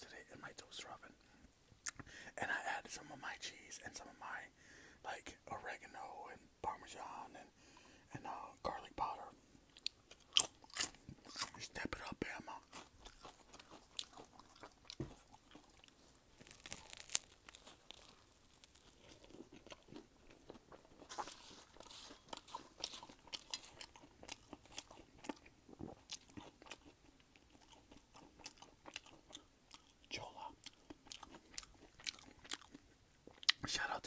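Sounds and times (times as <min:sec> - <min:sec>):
chewing crunchy food: 0:09.7 - 0:33.7.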